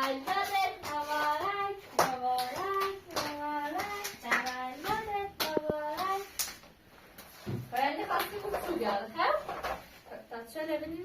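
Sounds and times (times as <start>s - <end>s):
hands clapping: 0.0s - 6.6s.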